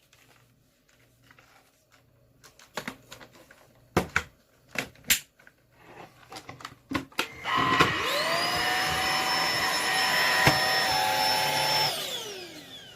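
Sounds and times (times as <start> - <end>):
cordless vacuum motor whine: 7.2 - 12.9.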